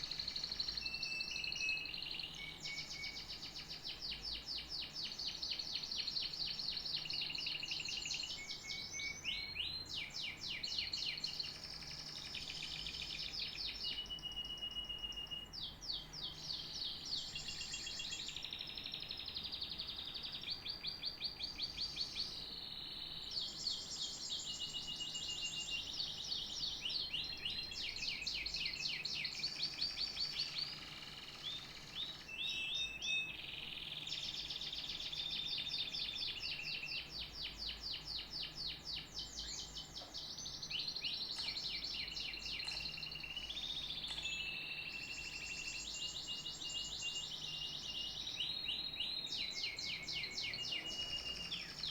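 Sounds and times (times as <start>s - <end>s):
canary singing: 0.0s - 51.9s.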